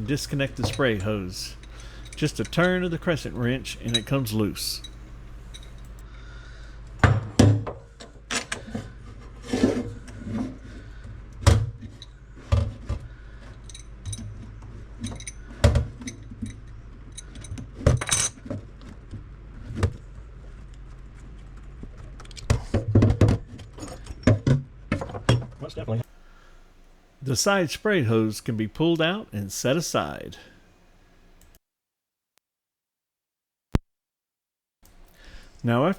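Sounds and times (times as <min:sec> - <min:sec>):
steady low hum: 0:00.0 - 0:22.2, 0:26.0 - 0:31.6
metal parts clinking and rattling: 0:03.8 - 0:06.0, 0:13.5 - 0:14.4, 0:15.0 - 0:18.5.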